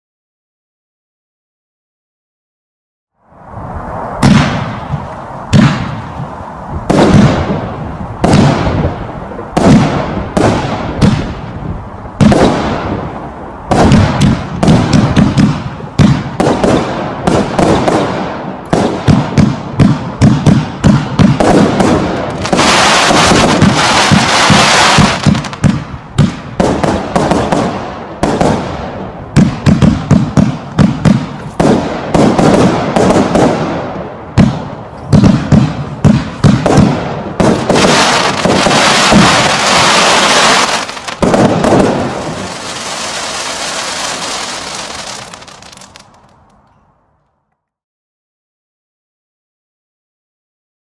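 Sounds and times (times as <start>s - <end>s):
firework cake shots bursting: 18.8s - 28.6s.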